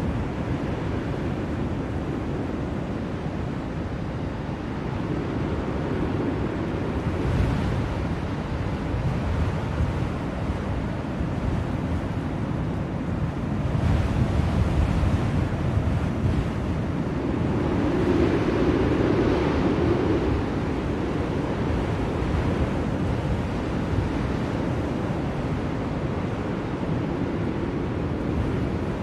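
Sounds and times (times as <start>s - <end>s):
blizzard wind blowing: 0.0s - 29.0s.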